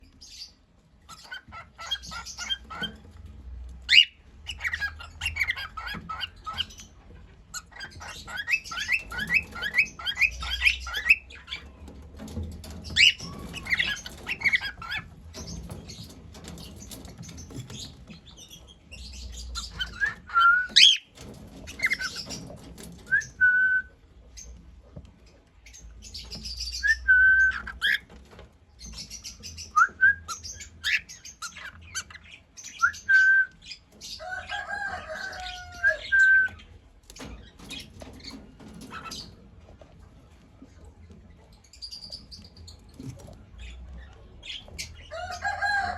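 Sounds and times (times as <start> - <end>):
cockatiel chirping: 3.9 - 6.8, 7.5 - 11.6
cockatiel whistles: 32.8 - 33.6.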